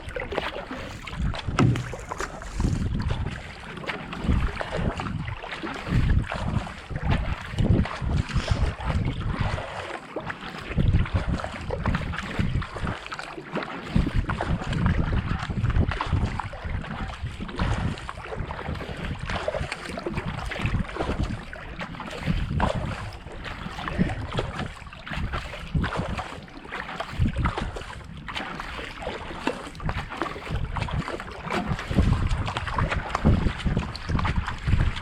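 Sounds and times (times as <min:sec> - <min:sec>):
wind buffeting microphone: 0:00.0 - 0:03.5, 0:04.1 - 0:09.6, 0:10.7 - 0:13.0, 0:14.0 - 0:26.3, 0:27.1 - 0:28.1, 0:29.7 - 0:35.0
paddle strokes splashing water: 0:00.0 - 0:35.0.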